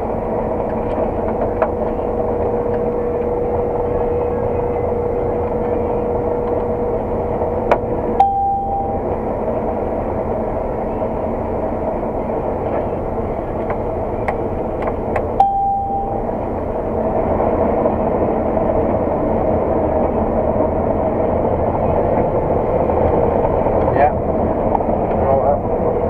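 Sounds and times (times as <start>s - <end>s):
combine harvester running: 0.0s - 26.0s
short beeps: 8.2s - 9.2s, 15.4s - 16.7s.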